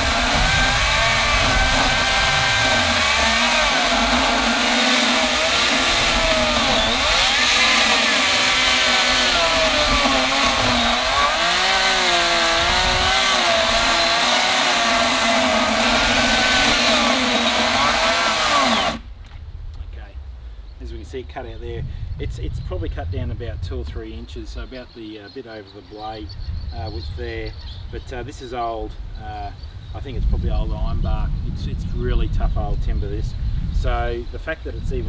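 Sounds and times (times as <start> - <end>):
chainsaw cutting hard wood: 0.0 - 19.0.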